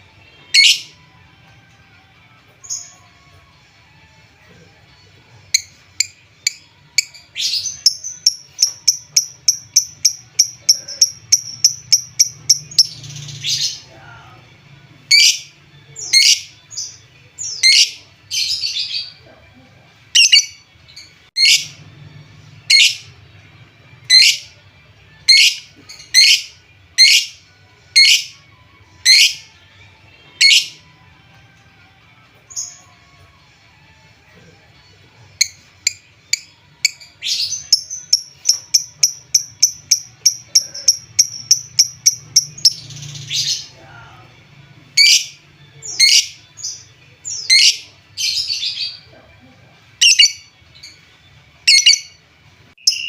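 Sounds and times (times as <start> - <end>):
lovebird calling: 20.2 - 20.6, 25.3 - 25.6, 37.3 - 43.6, 50.0 - 50.4, 51.7 - 52.1.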